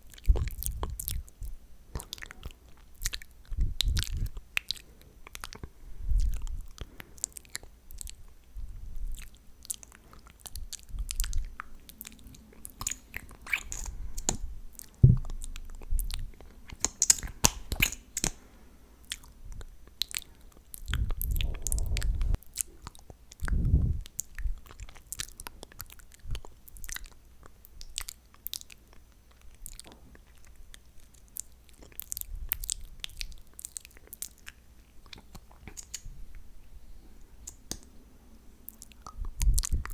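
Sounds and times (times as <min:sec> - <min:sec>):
wet mouth clicks and smacks: 0:00.1 - 0:08.2, 0:09.1 - 0:18.5, 0:31.4 - 0:36.2, 0:37.4 - 0:37.9, 0:38.7 - 0:39.9
low thuds: 0:14.3 - 0:16.4, 0:20.9 - 0:22.4.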